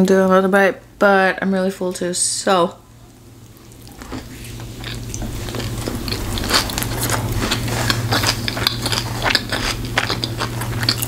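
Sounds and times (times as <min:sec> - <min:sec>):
chewing with mouth clicks: 0:03.4 - 0:11.0.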